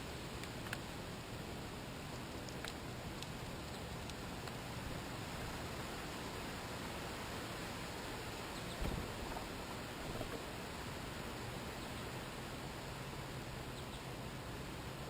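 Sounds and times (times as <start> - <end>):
background hiss: 0.0 - 15.0
faint clicks: 0.4 - 0.9, 2.4 - 4.6.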